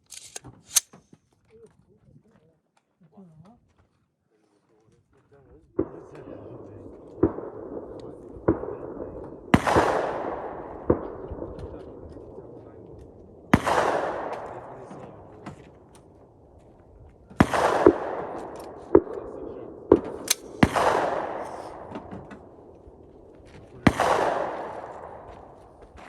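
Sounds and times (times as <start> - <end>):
sharp cracks: 0.0 - 1.0, 5.8 - 26.0
rifle shots echoing: 5.8 - 26.0.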